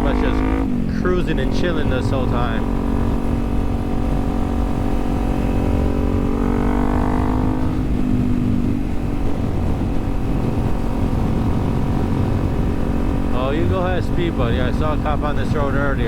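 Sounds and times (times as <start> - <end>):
motorcycle engine cruising: 0.0 - 16.0
wind rumbling on microphone: 0.0 - 16.0.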